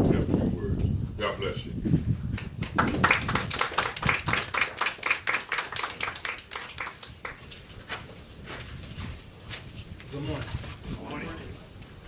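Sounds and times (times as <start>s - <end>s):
crowd clapping: 2.4s - 7.5s.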